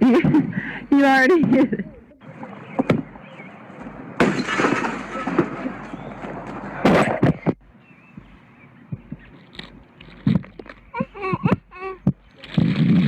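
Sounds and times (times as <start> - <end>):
clattering crash: 4.2 - 7.2.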